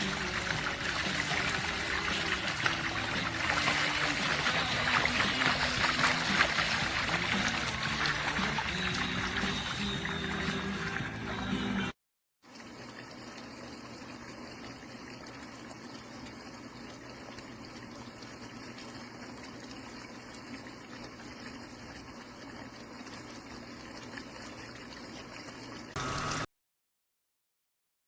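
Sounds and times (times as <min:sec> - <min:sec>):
fountain water cascading: 0:00.0 - 0:11.7.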